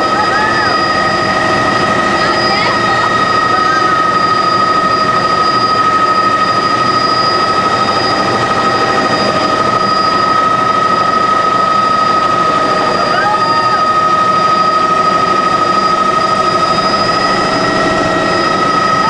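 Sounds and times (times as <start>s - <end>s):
helicopter engine and rotor drone: 0.0s - 19.0s
high whine: 0.0s - 19.0s.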